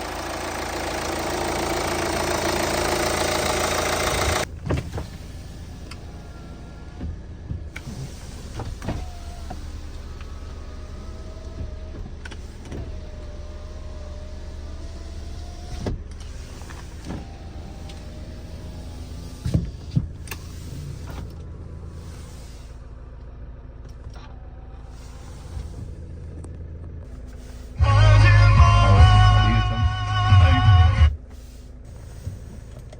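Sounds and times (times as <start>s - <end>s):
steady low hum: 27.4s - 32.3s
loud music: 27.8s - 31.1s
electric motor whining: 27.8s - 31.2s.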